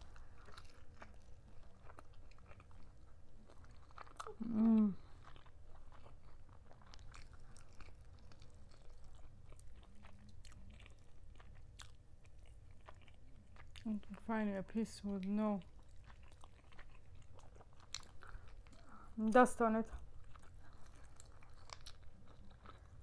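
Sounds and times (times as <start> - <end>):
close chewing: 0.0 - 23.0
person humming: 4.3 - 5.0.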